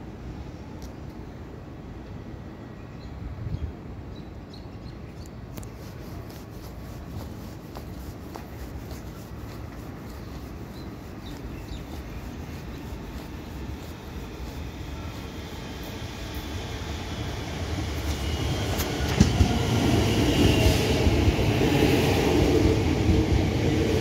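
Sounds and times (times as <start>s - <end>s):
distant electric train rumble: 5.5s - 24.0s.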